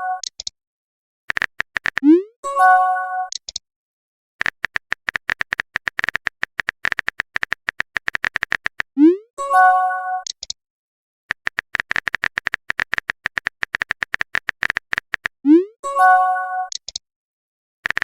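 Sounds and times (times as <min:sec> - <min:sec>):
typing clicks: 0:00.2 - 0:00.5, 0:01.3 - 0:02.2, 0:03.3 - 0:03.6, 0:04.4 - 0:08.9, 0:10.2 - 0:10.6, 0:11.3 - 0:15.4, 0:16.7 - 0:17.0.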